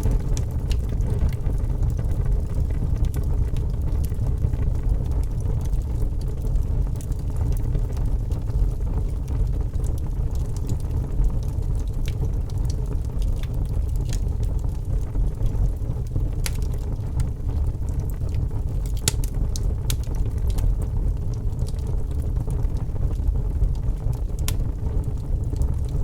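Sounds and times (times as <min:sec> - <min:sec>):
fireplace fire rumbling: 0:00.0 - 0:26.0
wood fire crackling and popping: 0:00.0 - 0:26.0.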